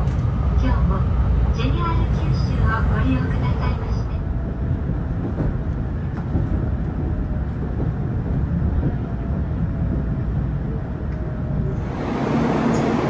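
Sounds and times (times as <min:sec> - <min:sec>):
train running gear rumble: 0:00.0 - 0:13.0.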